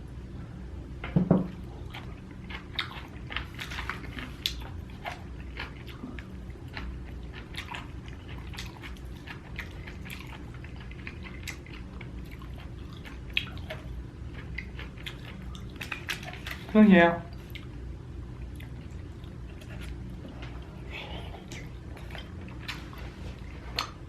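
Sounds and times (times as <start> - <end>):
person chewing food: 1.5 - 16.7, 17.3 - 17.8, 18.4 - 24.0.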